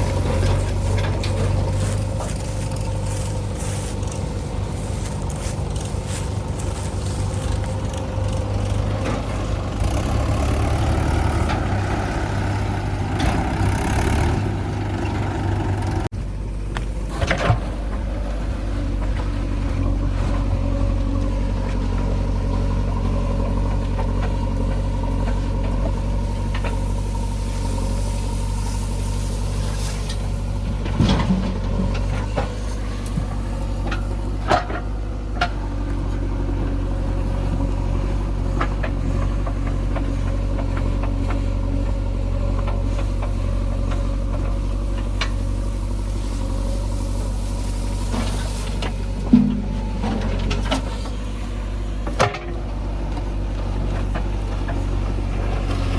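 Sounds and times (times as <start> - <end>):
diesel engine droning: 0.0 - 55.9
bucket and machinery knocks: 30.9 - 33.3, 49.2 - 50.9.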